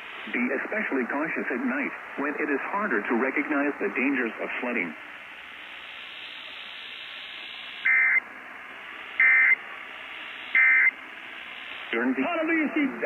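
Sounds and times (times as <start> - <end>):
radio receiver hiss: 0.0 - 13.0
warbling data bursts: 3.2 - 8.2, 8.9 - 13.0.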